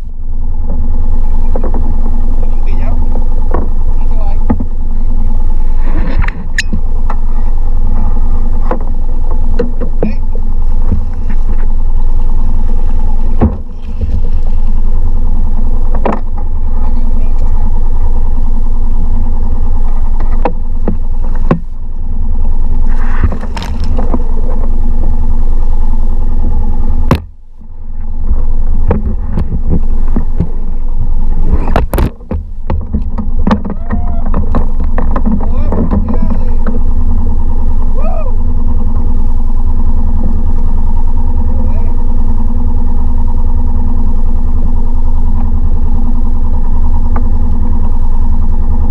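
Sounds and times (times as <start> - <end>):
outboard motor running: 0.0 - 48.9.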